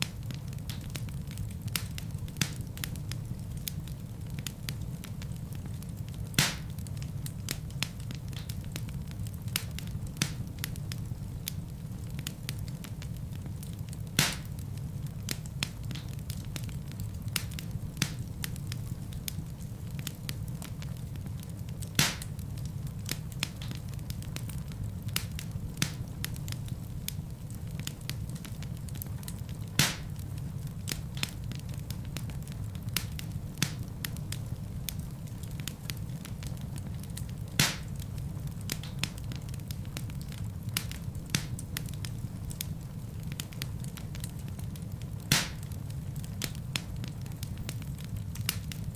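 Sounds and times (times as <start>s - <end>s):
low rumble of flame: 0.0s - 48.9s
wood fire crackling: 0.0s - 48.9s
logs popping: 6.4s - 6.8s, 14.2s - 14.6s, 21.9s - 22.4s, 29.3s - 31.6s, 35.9s - 38.0s, 45.3s - 45.7s.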